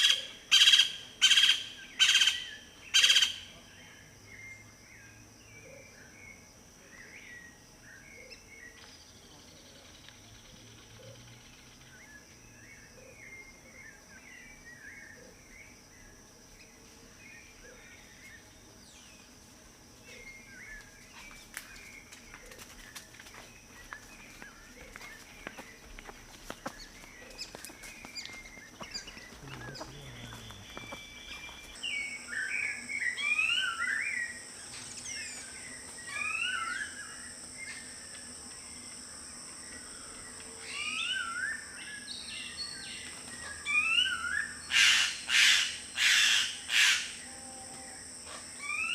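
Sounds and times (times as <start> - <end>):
wild birds chirping: 20.0 - 47.3.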